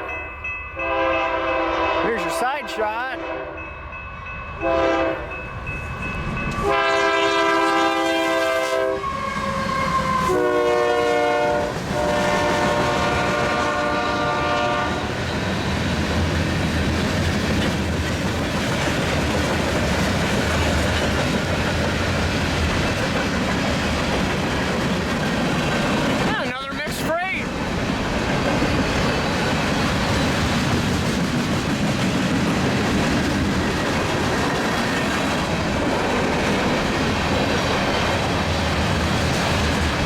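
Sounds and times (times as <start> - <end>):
freight train cars rumbling: 0.0 - 40.0
locomotive horn blasts: 0.8 - 3.6, 4.6 - 5.4, 6.6 - 15.1.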